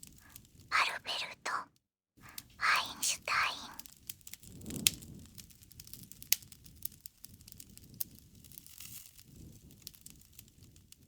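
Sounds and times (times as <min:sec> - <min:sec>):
campfire crackles and pops: 0:03.8 - 0:11.0
low rumble of flames: 0:03.8 - 0:11.0.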